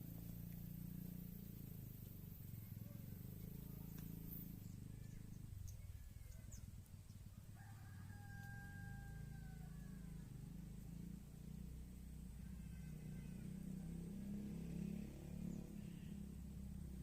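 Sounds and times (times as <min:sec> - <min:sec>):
rooster crowing: 0:07.4 - 0:10.4.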